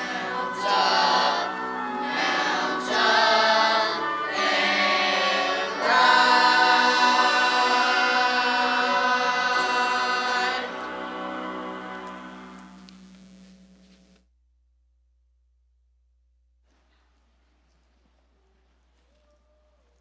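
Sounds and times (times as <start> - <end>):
choir singing with accompaniment: 0.0 - 12.8.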